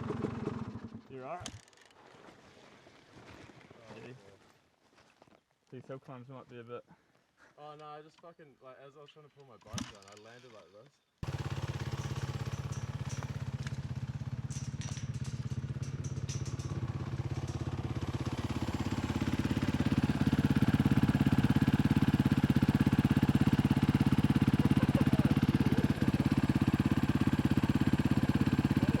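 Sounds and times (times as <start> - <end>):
dirt bike engine idling: 0.0 - 1.0, 11.2 - 29.0.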